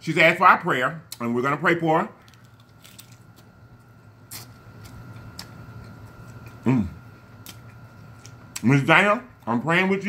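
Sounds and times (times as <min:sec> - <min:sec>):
chewing crunchy fried chicken: 0:02.2 - 0:09.6.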